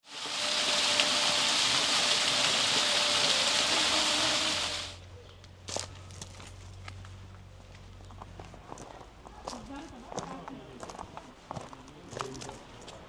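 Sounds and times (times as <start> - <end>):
waterfall rushing: 0.0 - 5.0.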